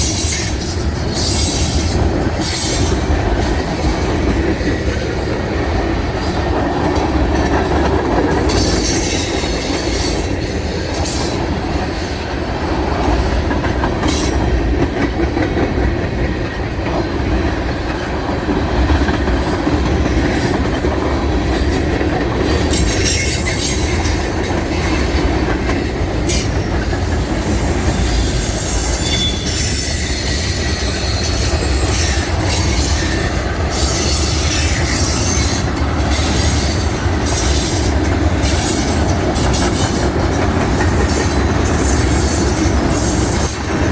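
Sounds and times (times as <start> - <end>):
rail joint clicks: 0.0 - 43.9
train wheels rumbling: 0.0 - 43.9
high-pitched wheel squeals: 27.3 - 36.8.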